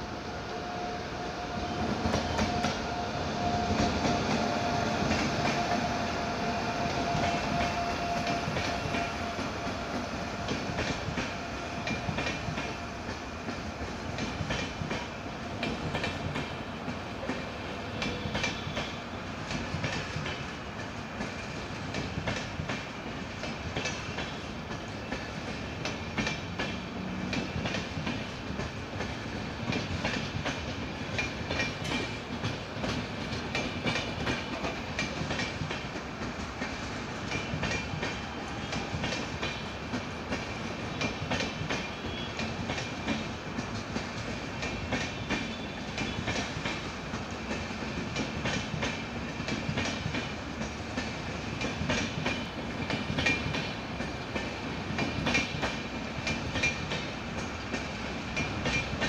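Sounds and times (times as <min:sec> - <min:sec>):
train rumble: 0:00.0 - 0:59.0
train wheels clacking over rail joints: 0:01.6 - 0:59.0.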